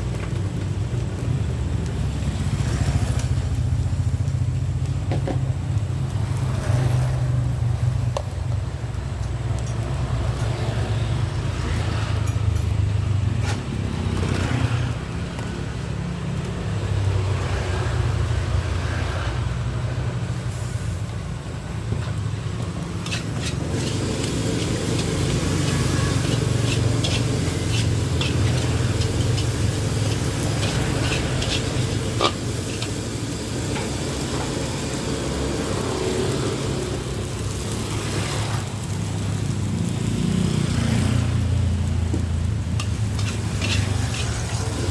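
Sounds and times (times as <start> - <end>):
rice sizzling in a wok: 0.0 - 44.9
metal spatula scraping pan: 23.0 - 34.2, 42.7 - 44.9.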